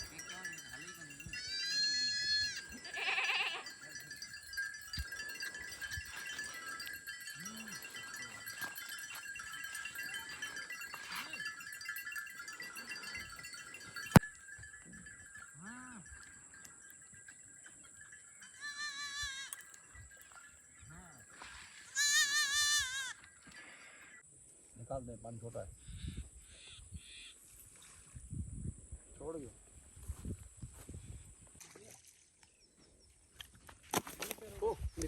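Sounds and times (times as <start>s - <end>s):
animal bleating: 1.3s - 3.8s, 18.6s - 19.6s, 21.9s - 23.2s.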